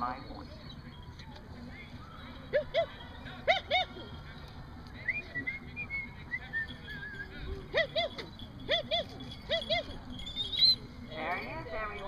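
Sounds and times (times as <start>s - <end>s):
high wavering whistle-like tone: 5.0s - 11.2s.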